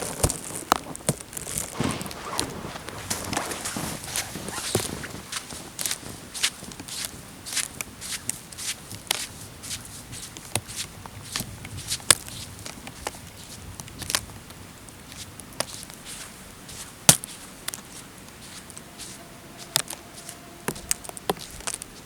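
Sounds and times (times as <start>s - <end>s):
footsteps on forest floor: 1.4s - 6.6s, 16.2s - 21.8s.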